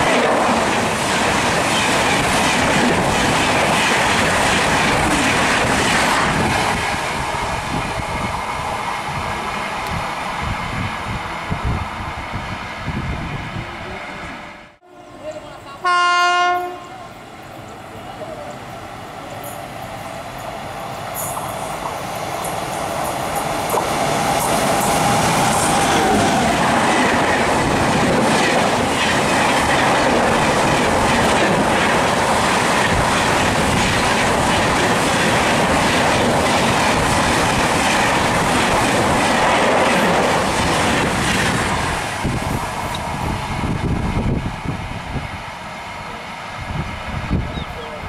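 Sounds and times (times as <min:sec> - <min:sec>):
train passing at speed: 0:00.0 - 0:48.0
wheels clacking over rail joints: 0:21.1 - 0:43.2.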